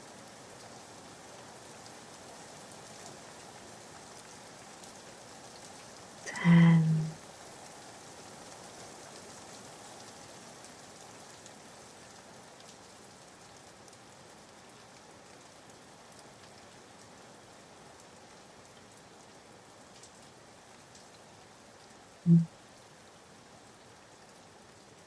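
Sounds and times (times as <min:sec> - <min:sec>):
soft rain hissing: 0:00.0 - 0:25.0
raindrop ticks: 0:21.8 - 0:22.5.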